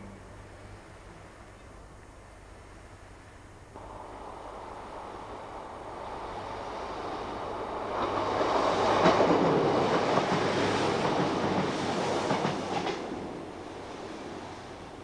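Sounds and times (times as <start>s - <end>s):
diesel train passing: 3.8s - 15.0s.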